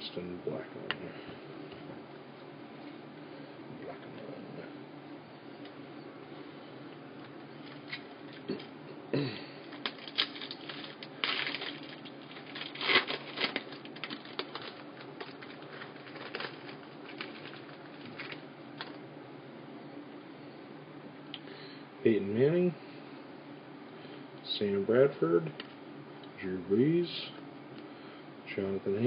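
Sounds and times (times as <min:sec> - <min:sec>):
card pack wrapper tearing: 0:09.7 - 0:19.0.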